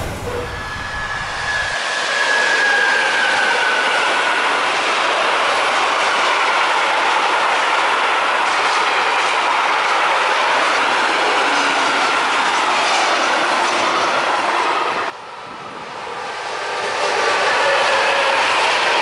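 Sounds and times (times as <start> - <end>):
thin wheel squeal: 0.0 - 4.6
freight train wheels on rail: 0.0 - 19.0.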